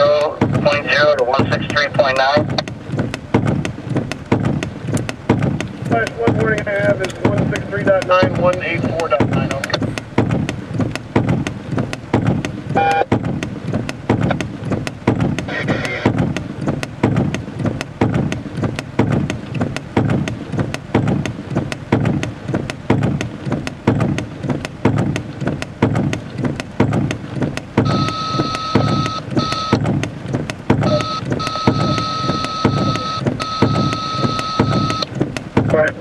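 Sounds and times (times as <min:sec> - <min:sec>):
heavy rain on car roof: 0:00.0 - 0:36.0
electronic beep tone: 0:12.8 - 0:13.1, 0:27.9 - 0:29.8, 0:30.8 - 0:35.1.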